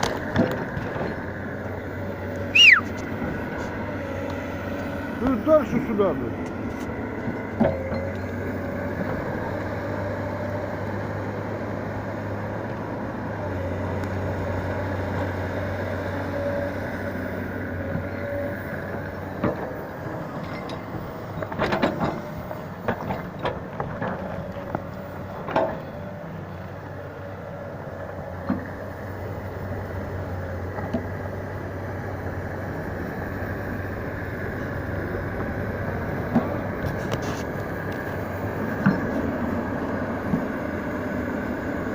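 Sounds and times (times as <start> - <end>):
heavy vehicle engine running: 0.0 - 41.9
sharp clanks and knocks: 38.8 - 39.2.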